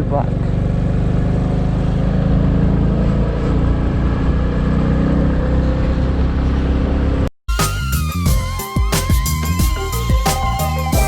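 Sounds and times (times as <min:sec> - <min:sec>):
motorcycle engine running: 0:00.0 - 0:05.4.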